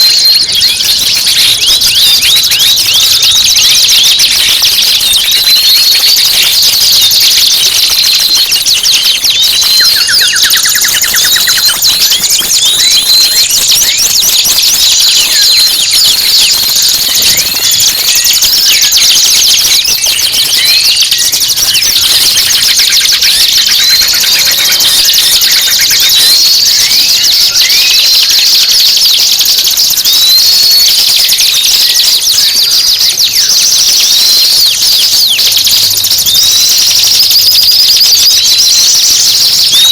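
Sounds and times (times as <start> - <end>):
recorded songbird chatter and trills: 0.0 - 39.9
rising whistled bird note: 8.0 - 16.6, 22.6 - 28.4.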